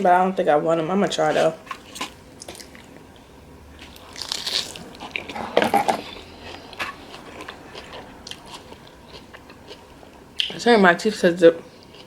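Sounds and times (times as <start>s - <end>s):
person chewing crunchy fries: 1.7s - 3.0s, 3.8s - 10.6s, 11.6s - 12.0s.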